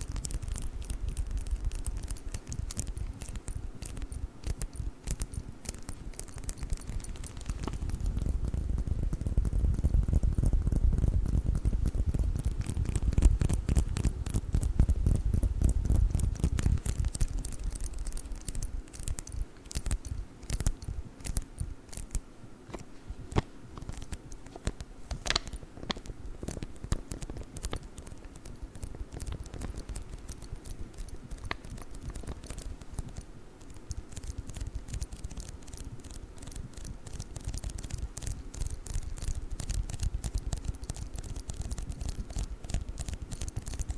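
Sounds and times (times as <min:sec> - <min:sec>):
sticky tape crackling: 0:00.0 - 0:43.9.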